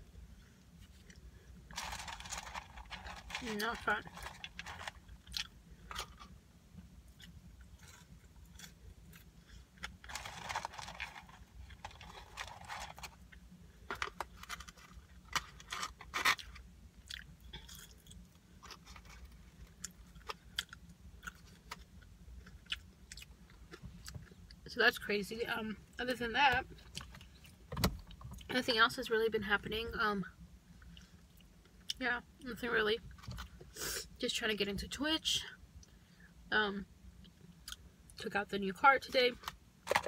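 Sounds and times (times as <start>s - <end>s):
person chewing food: 16.4s - 18.8s.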